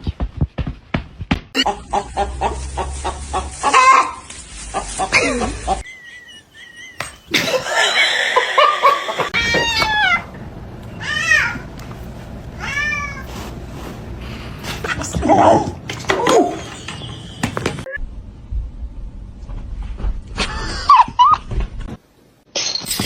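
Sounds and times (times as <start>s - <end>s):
cat meowing: 12.6s - 13.2s.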